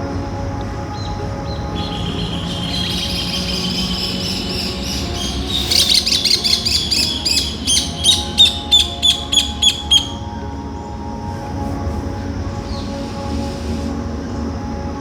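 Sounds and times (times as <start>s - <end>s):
faint low tones: 0.0s - 15.0s
steady high chirring: 0.0s - 15.0s
bird chirping sharply: 1.8s - 10.3s.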